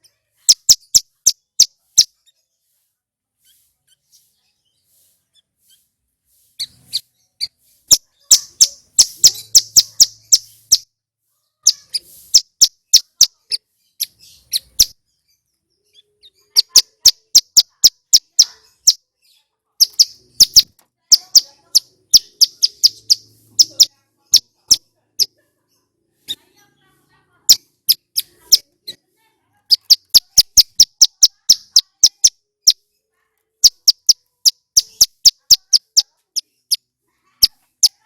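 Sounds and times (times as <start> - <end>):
bird singing high-pitched notes: 0.0 - 2.5, 6.6 - 10.9, 11.6 - 25.3, 29.7 - 32.9, 33.6 - 36.8.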